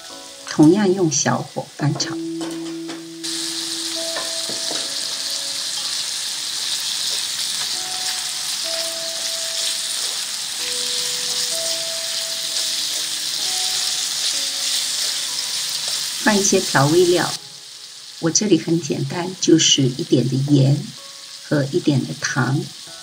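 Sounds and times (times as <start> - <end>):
chopsticks stir-frying in a wok: 0.0 - 23.0
shrimp sizzling in oil: 0.0 - 23.0.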